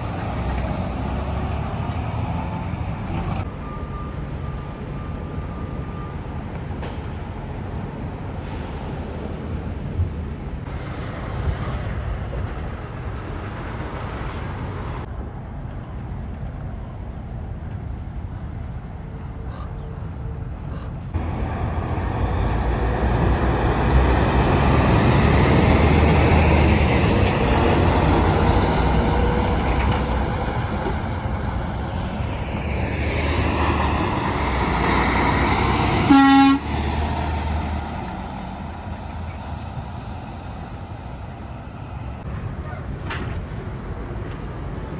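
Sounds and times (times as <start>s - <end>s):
heavy truck passing: 0.0s - 15.1s, 20.9s - 44.9s
truck horn blast: 36.0s - 37.2s.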